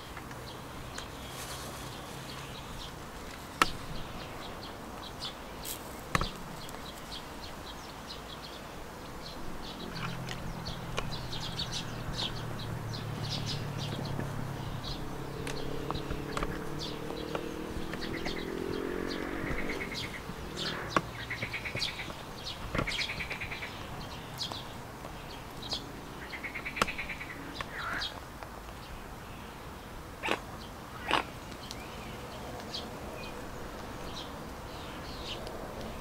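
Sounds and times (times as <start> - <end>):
trilling bird calls: 0.0 - 28.2
birds chirping: 0.0 - 36.0.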